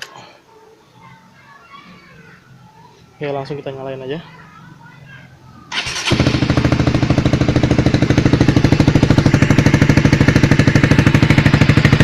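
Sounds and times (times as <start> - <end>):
motorcycle engine idling: 5.7 - 12.0.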